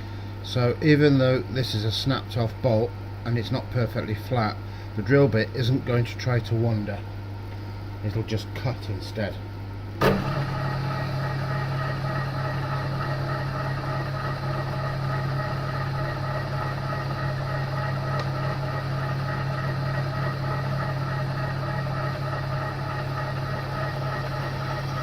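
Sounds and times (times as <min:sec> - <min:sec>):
milling machine hum: 0:06.0 - 0:25.0.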